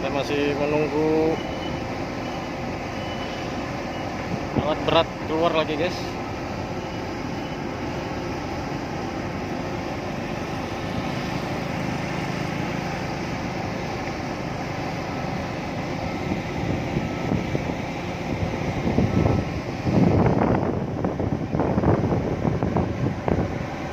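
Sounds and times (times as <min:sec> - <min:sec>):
engines rumbling: 0:00.0 - 0:23.9
wind buffeting microphone: 0:16.2 - 0:23.9.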